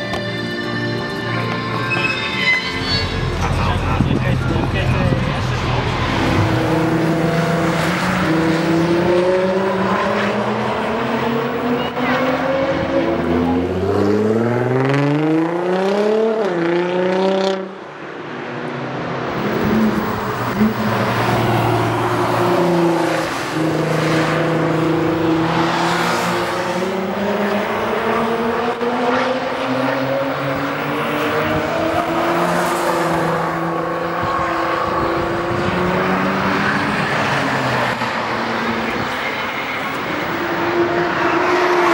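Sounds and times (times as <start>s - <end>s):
car engine revving hard: 5.0s - 17.6s.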